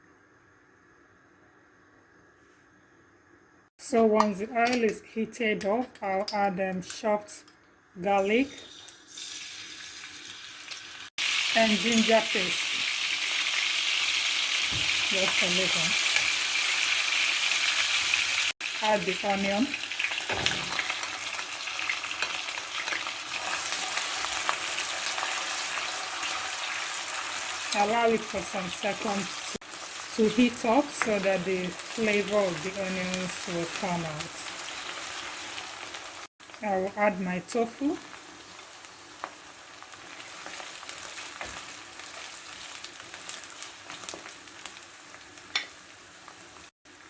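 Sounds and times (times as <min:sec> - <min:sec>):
onion sizzling in oil: 0:08.0 - 0:47.0.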